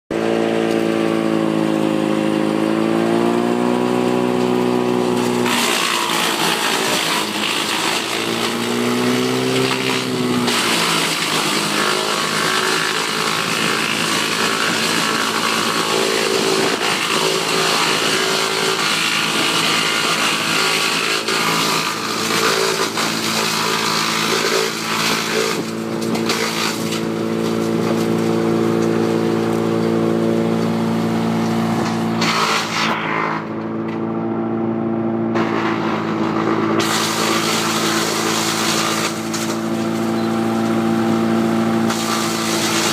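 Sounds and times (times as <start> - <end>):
tractor engine running: 0.1 - 42.9
wood chipper chipping wood: 0.1 - 42.9.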